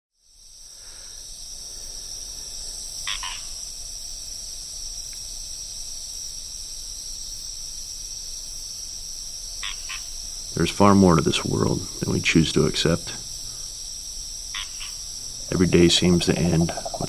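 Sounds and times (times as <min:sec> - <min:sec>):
frogs and insects calling: 0:00.2 - 0:17.0
quick chirps: 0:14.6 - 0:17.0.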